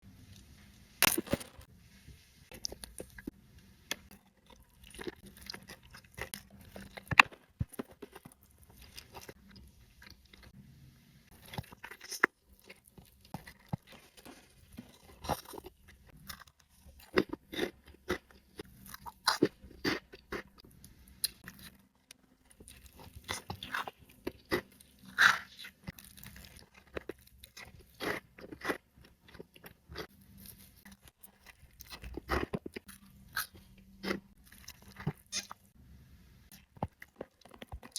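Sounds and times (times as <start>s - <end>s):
person chewing food: 2.5s - 10.5s, 11.3s - 35.6s, 36.5s - 37.9s.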